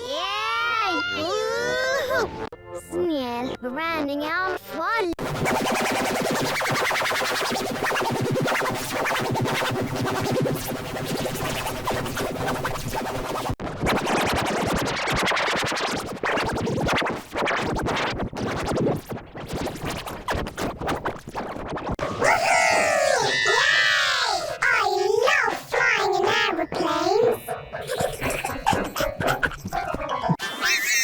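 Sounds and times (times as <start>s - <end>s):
buzzing cartoon music: 5.2s - 16.7s, 25.8s - 30.4s
scratch-like stutters: 5.2s - 22.2s.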